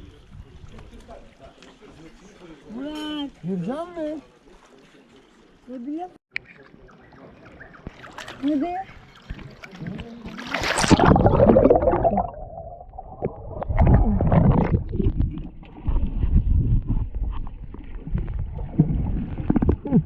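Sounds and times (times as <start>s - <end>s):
sea water splashing and sloshing: 7.2s - 20.0s.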